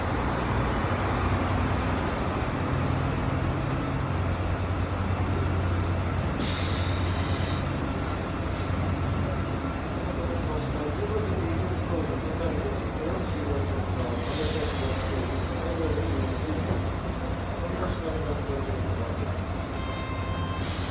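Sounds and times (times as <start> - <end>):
diesel bus engine droning: 0.0 - 20.9
compressed air hiss: 6.4 - 7.8, 14.1 - 17.0, 20.6 - 20.9.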